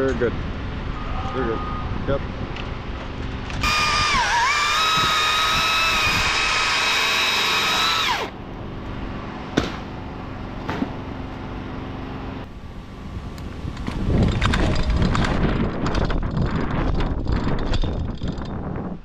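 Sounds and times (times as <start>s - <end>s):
chainsaw cutting wood: 3.6s - 8.4s.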